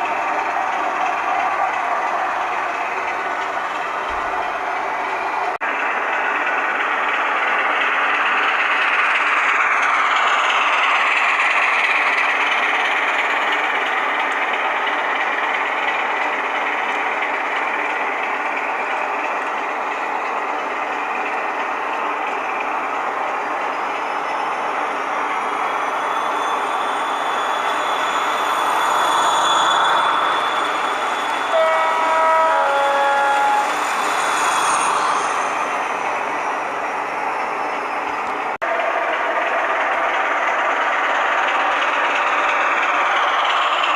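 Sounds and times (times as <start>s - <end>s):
model locomotive diesel engine sound: 0.0s - 43.9s
wheels hissing on track: 0.0s - 43.9s
two-tone horn: 31.5s - 33.8s.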